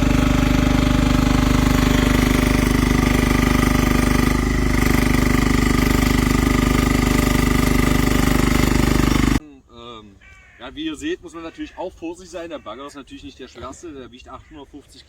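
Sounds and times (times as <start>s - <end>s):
small excavator engine chugging: 0.0s - 9.4s.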